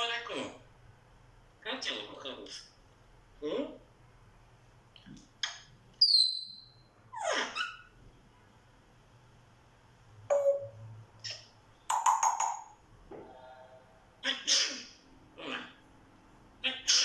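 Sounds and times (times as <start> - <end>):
parrot squeaks and clicks: 5.4 - 6.6, 11.2 - 12.7
parrot whistling: 6.0 - 6.8.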